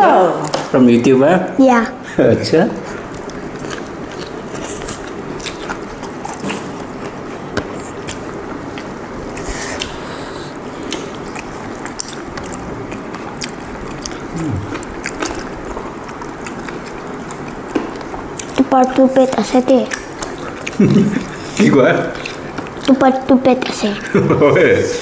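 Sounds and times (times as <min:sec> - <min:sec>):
pork being bitten and chewed: 0:02.9 - 0:19.3, 0:19.9 - 0:23.0.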